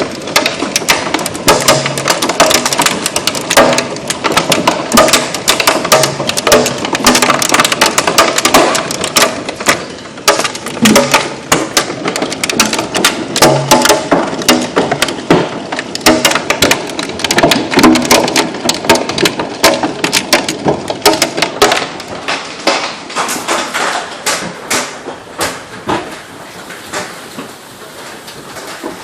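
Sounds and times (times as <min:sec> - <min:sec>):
heavy hail clattering: 0:00.0 - 0:29.0
rain-like hiss: 0:20.5 - 0:29.0.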